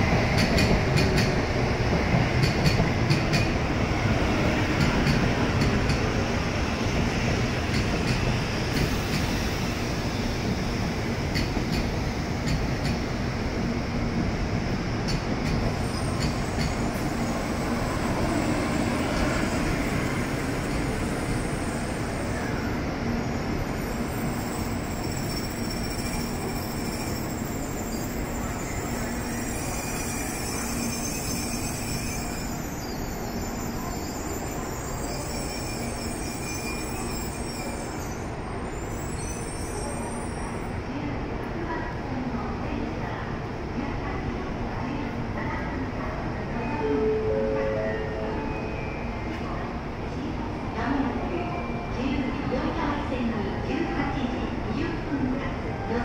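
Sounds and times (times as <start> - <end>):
train running noise: 0.0 - 56.0
high brake squeals: 23.8 - 40.7.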